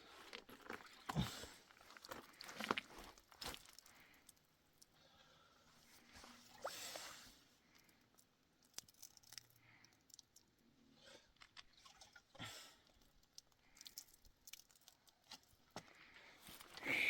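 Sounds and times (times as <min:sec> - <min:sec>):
small objects clicking and crunching: 0:02.0 - 0:04.9, 0:07.7 - 0:10.6, 0:12.9 - 0:15.7.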